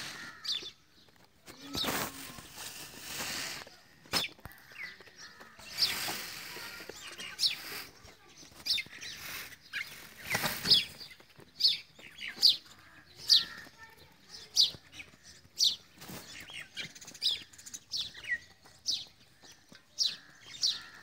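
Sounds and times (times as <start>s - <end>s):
rustling: 1.5s - 11.2s.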